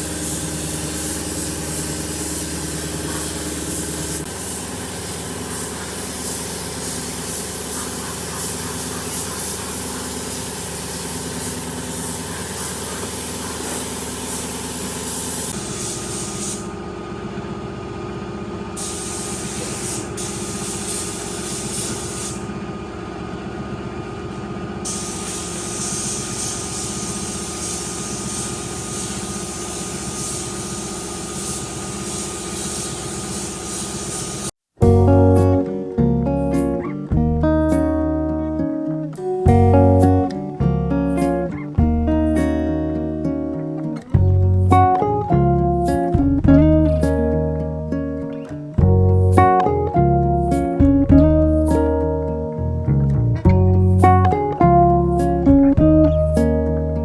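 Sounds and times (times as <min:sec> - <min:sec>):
machine humming and hissing: 0:00.0 - 0:37.9.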